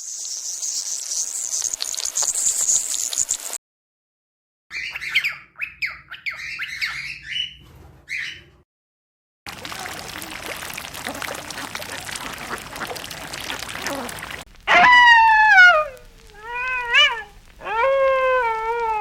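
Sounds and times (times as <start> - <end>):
bird squawking: 4.7 - 8.5.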